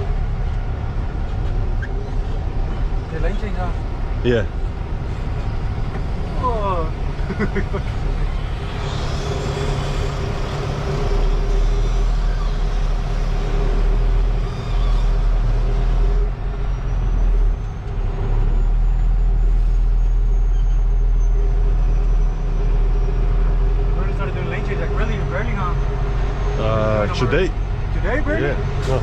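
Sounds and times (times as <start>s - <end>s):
truck diesel engine running: 0.0s - 29.0s.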